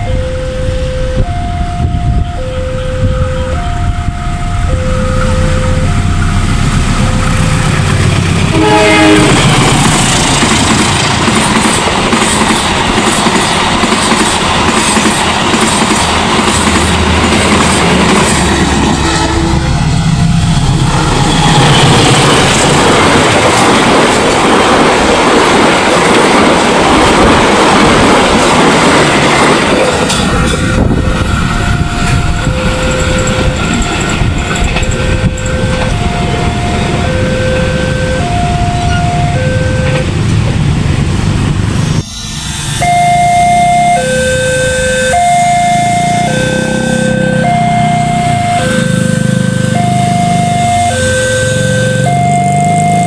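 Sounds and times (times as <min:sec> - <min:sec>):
two-tone crossing alarm: 0:00.0 - 0:40.8, 0:42.2 - 0:53.0
train horn blast: 0:01.9 - 0:10.3, 0:17.8 - 0:22.5, 0:29.4 - 0:40.2, 0:42.8 - 0:52.2
train wheels clattering on rails: 0:05.2 - 0:42.9.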